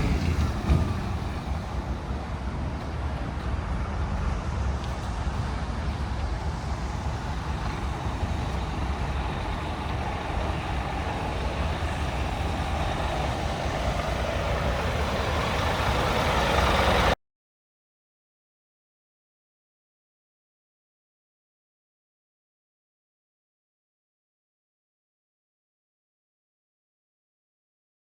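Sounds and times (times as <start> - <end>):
truck diesel engine rumbling: 0.0 - 17.2.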